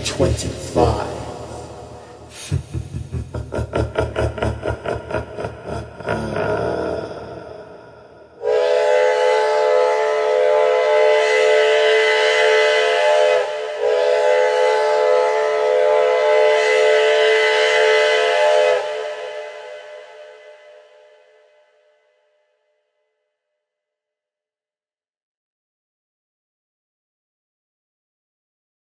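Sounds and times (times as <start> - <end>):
rumble: 0.0 - 8.4
steam locomotive chime whistle: 8.4 - 21.4.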